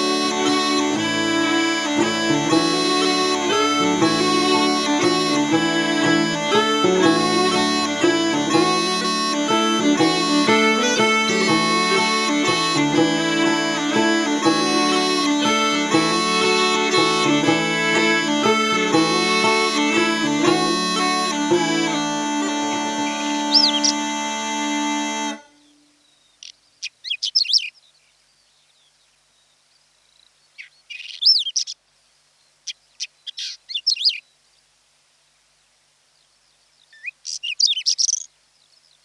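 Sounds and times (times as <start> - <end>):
banjo: 0.0 - 25.5
bagpipe drones: 0.0 - 25.8
bagpipe waltz melody: 0.0 - 25.9
fiddle: 0.0 - 25.9
bird-like chirp: 25.6 - 31.8, 32.6 - 34.4, 36.2 - 39.0.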